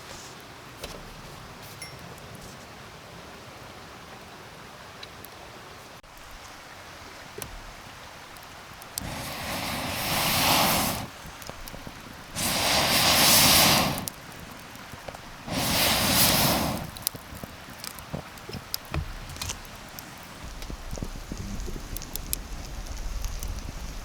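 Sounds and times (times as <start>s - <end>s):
campfire crackling: 4.1s - 24.0s
blowing air into a fire: 8.8s - 24.0s.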